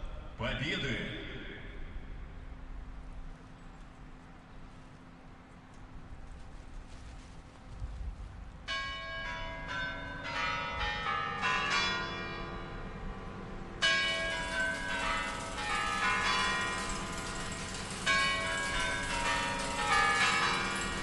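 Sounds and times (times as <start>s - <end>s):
clock bells chiming: 8.7s - 12.8s, 13.8s - 21.0s.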